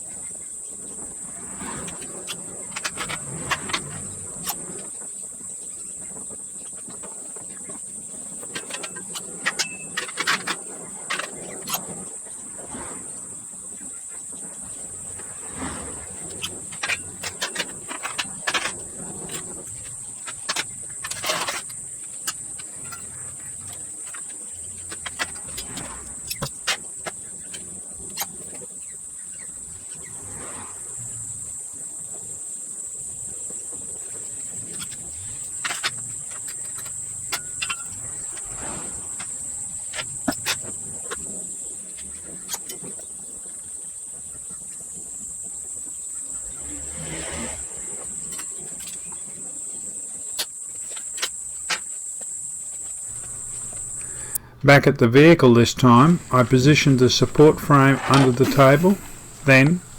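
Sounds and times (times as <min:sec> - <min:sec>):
insect chirring: 0:53.1 - 0:54.6
sharp clicks and knocks: 0:53.1 - 0:54.6.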